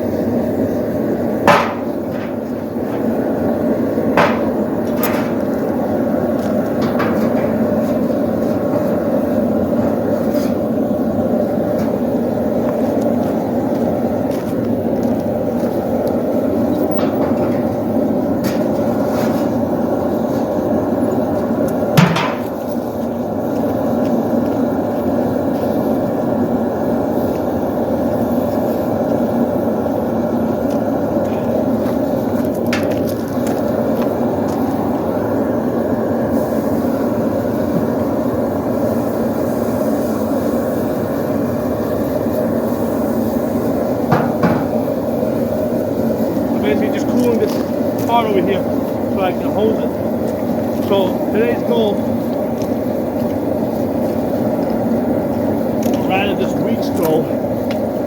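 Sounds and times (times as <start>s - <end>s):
forge roaring: 0.0s - 57.5s
metal knocks and clanks: 1.5s - 3.1s, 4.2s - 5.6s, 6.7s - 8.1s, 16.8s - 17.8s, 22.0s - 22.6s.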